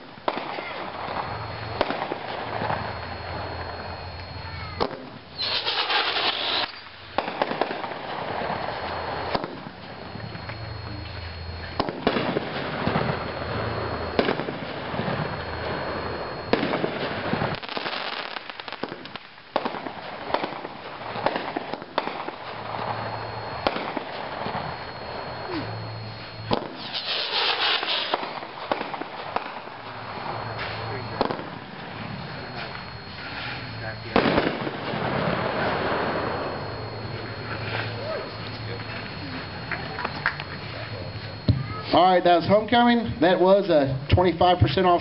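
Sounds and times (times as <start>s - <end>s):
firework aerial breaks: 0.0s - 42.0s
loud hissing firework burst: 3.8s - 9.9s, 11.8s - 38.8s
firework launch thumps: 9.3s - 9.8s, 11.8s - 13.2s, 26.5s - 29.7s, 30.6s - 31.6s, 32.6s - 35.4s.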